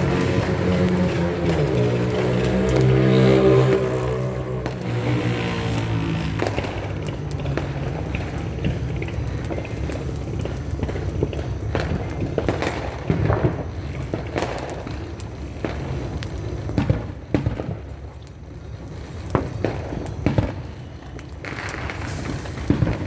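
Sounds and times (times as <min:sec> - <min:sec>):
low rumble: 0:00.0 - 0:08.8
fireworks bangs and pops: 0:00.0 - 0:23.0
hissing crackling fireworks: 0:00.0 - 0:23.0.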